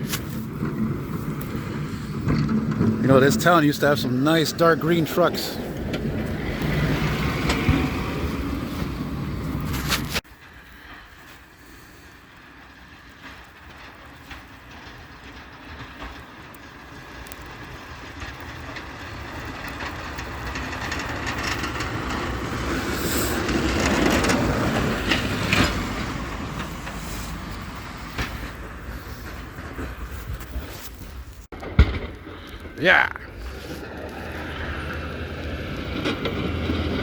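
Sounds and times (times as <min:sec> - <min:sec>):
heavy vehicle passing: 0:00.0 - 0:10.0, 0:18.8 - 0:30.3, 0:32.3 - 0:37.0.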